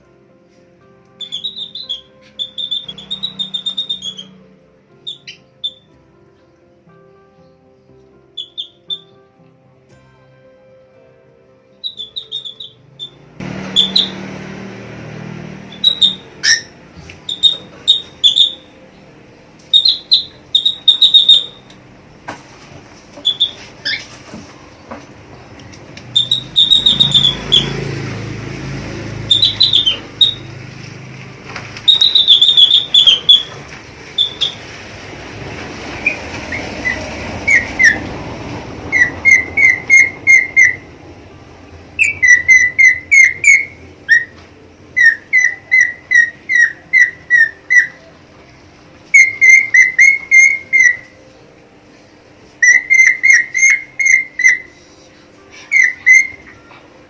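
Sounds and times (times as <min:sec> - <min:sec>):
budgerigar whistling: 0:01.2 - 0:04.4, 0:05.0 - 0:05.9, 0:08.4 - 0:09.1, 0:11.8 - 0:14.2, 0:15.7 - 0:18.9, 0:19.7 - 0:21.8, 0:23.2 - 0:24.2, 0:26.1 - 0:27.9, 0:29.2 - 0:30.5, 0:31.8 - 0:34.7, 0:36.0 - 0:38.1, 0:38.9 - 0:40.9, 0:42.0 - 0:44.4, 0:45.0 - 0:48.1, 0:49.1 - 0:51.3, 0:52.6 - 0:54.9, 0:55.5 - 0:56.7.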